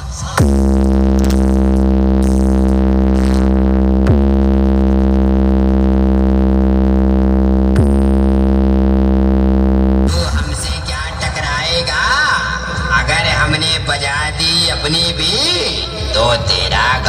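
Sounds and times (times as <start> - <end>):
deep synthesized bass note: 0.4 - 11.5.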